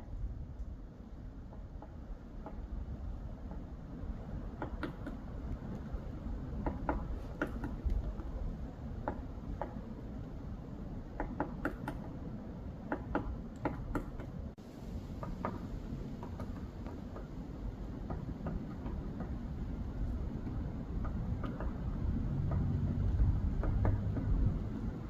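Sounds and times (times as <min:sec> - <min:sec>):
woodpecker pecking at wood: 0:04.5 - 0:05.9, 0:06.6 - 0:08.4, 0:09.0 - 0:09.8, 0:11.2 - 0:12.2, 0:12.8 - 0:14.3, 0:21.0 - 0:22.7, 0:23.5 - 0:24.4.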